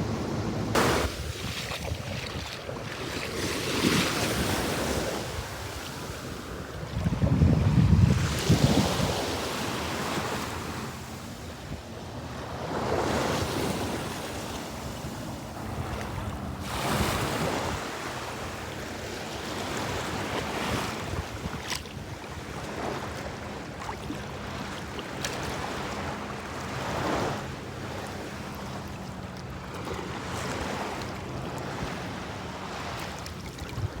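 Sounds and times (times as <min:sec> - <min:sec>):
wind buffeting microphone: 0:00.0 - 0:19.0, 0:33.6 - 0:34.0
waves breaking and washing in: 0:00.0 - 0:34.0.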